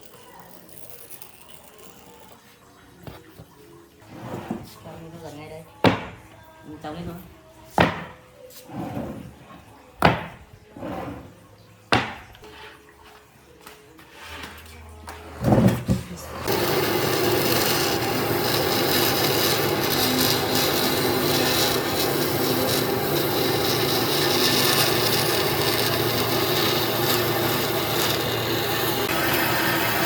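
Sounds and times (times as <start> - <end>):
power tool grinding wood: 16.3 - 30.0.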